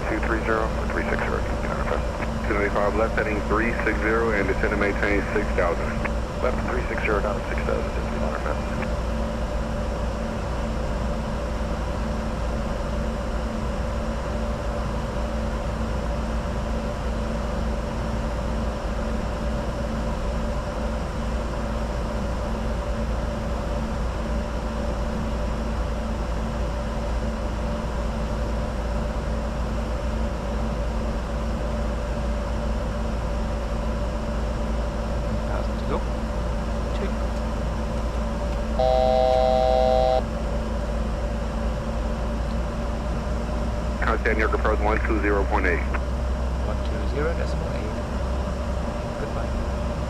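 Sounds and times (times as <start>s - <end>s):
low rumble: 0.0s - 9.0s
steady hums: 0.0s - 13.0s, 34.9s - 50.0s.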